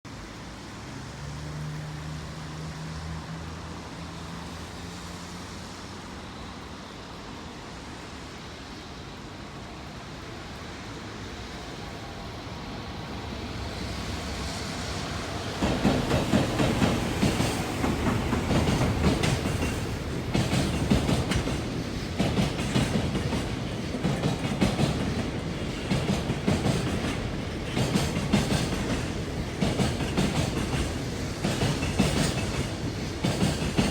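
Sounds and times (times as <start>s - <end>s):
freight train passing: 0.1s - 33.9s
wheels clattering over rail joints: 15.5s - 33.9s.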